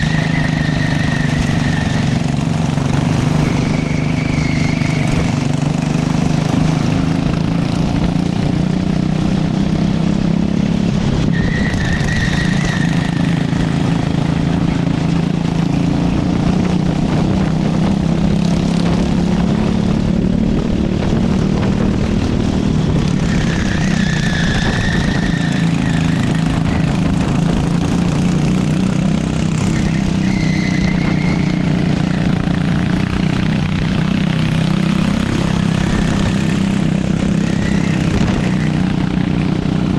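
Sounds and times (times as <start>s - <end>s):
high squeals: 0.0s - 6.0s, 23.2s - 26.9s, 29.5s - 32.4s, 35.4s - 39.0s
kart engine racing: 0.0s - 39.9s.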